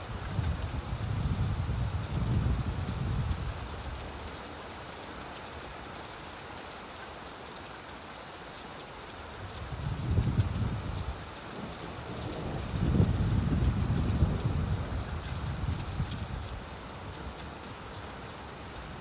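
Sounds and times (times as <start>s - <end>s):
steady rain falling: 0.0s - 19.0s
rolling thunder rumble: 12.2s - 16.4s.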